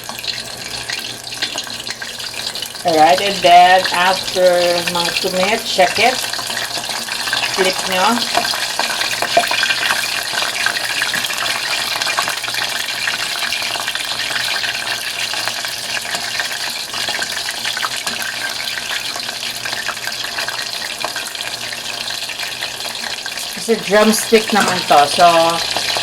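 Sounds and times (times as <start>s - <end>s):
chicken sizzling in oil: 0.0s - 26.0s.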